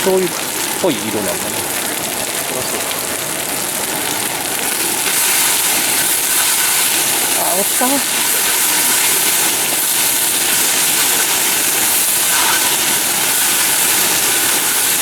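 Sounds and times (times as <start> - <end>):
noodles sizzling on hot plate: 0.0 - 15.0.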